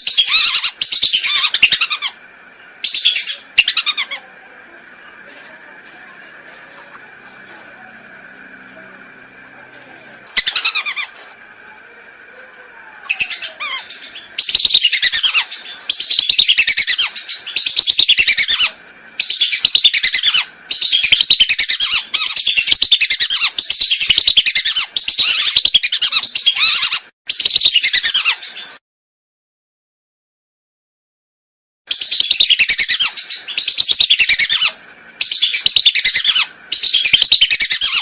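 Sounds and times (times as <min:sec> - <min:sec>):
ducks whistling calls: 0:31.9 - 0:38.0.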